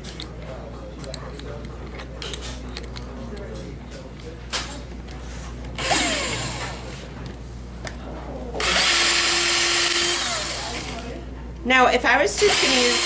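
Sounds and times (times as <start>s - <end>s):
electric drill boring into wood: 5.8s - 6.8s, 8.6s - 11.1s, 12.4s - 13.0s.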